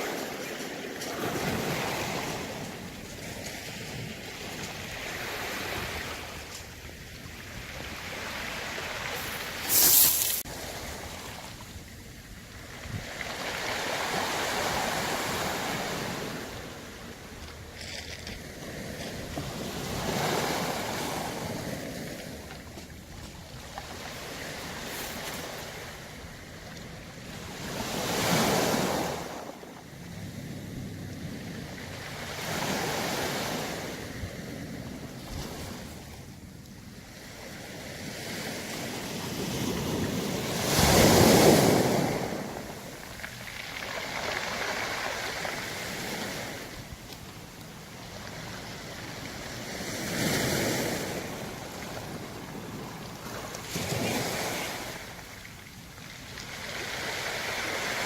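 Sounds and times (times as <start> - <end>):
waves surging onto beach: 0.0 - 17.7, 18.6 - 58.0
pebbles rattling: 9.2 - 10.4.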